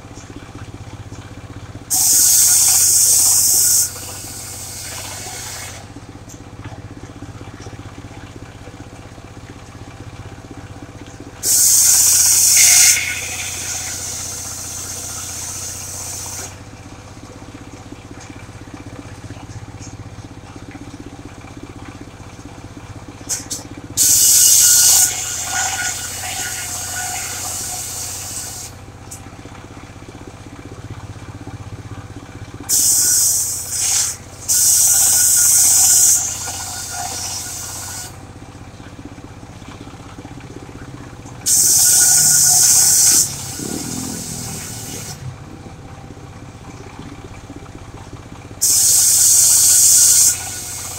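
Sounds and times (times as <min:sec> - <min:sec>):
sawmill engine running: 0:00.0 - 0:50.9
saw blade cutting timber: 0:11.4 - 0:16.6, 0:23.3 - 0:28.7, 0:41.5 - 0:45.2.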